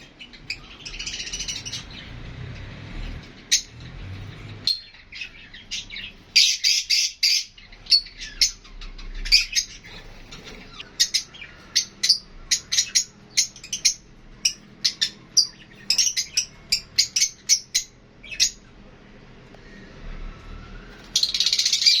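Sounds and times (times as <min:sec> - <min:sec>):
lovebirds chirping: 0:00.0 - 0:22.0.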